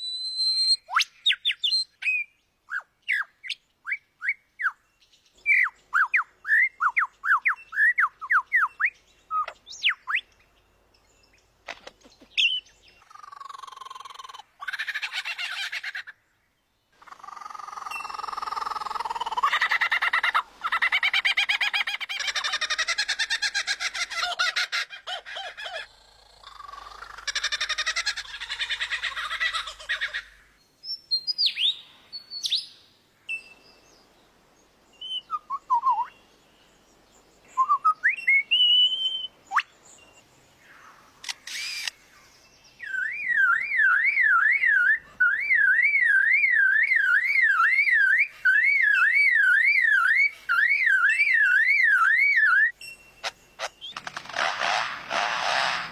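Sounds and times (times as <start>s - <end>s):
songbird singing mimicry: 0.0s - 14.4s, 30.6s - 34.1s, 34.9s - 40.3s, 42.3s - 54.0s.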